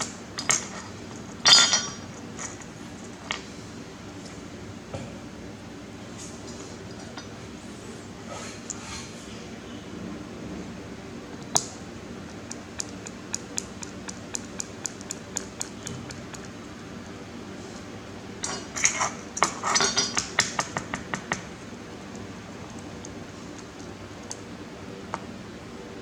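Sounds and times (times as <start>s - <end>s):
light evenly spaced ticks: 11.5s - 17.2s.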